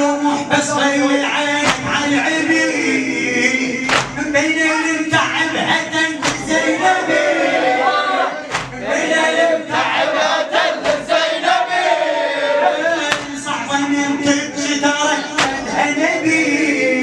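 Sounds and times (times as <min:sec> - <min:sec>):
crowd of men chanting: 0:00.0 - 0:17.0
sharp claps or strikes: 0:01.6 - 0:02.1, 0:03.8 - 0:04.3, 0:06.2 - 0:06.6, 0:08.5 - 0:08.8, 0:10.8 - 0:11.1, 0:13.1 - 0:13.5, 0:15.4 - 0:15.7.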